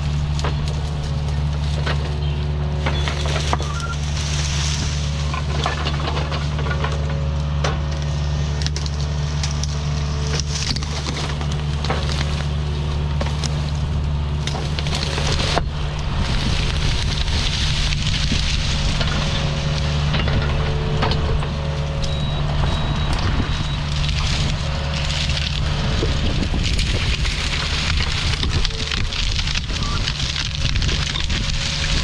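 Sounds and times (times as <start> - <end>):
rake tearing through brush: 0.0 - 20.0
branches snapping and crackling: 0.0 - 32.0
excavator diesel engine: 0.0 - 32.0.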